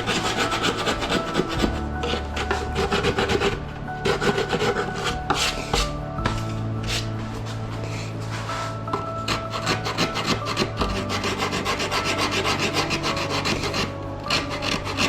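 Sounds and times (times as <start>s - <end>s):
hand tool rasping on foam: 0.0s - 6.0s, 7.9s - 15.0s.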